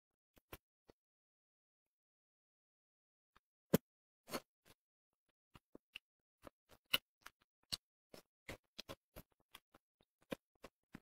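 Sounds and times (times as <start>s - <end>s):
person chewing food: 5.6s - 11.0s.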